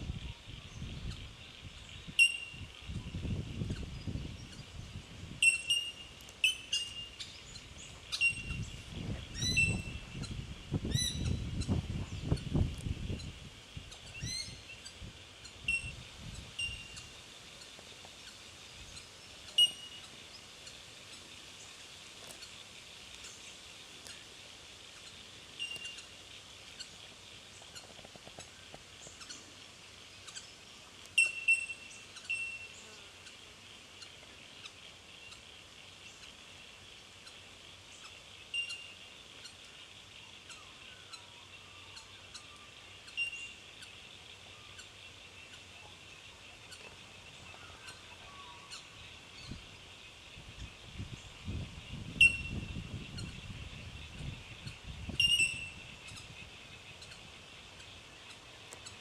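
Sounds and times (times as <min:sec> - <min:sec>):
high-pitched background hiss: 0:00.0 - 0:59.0
bell-like bird calls: 0:02.2 - 0:02.7, 0:16.6 - 0:17.0, 0:19.6 - 0:20.0, 0:52.2 - 0:52.6, 0:55.2 - 0:55.8.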